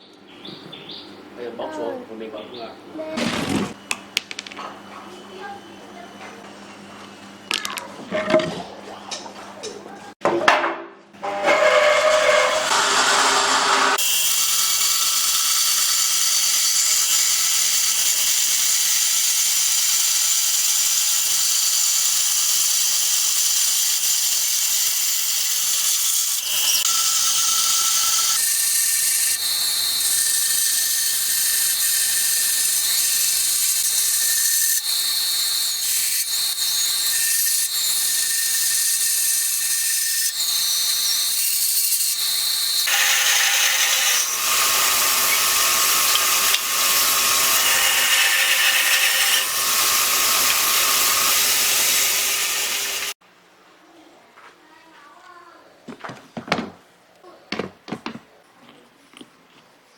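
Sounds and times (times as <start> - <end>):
power tool whining: 11.2 - 53.2.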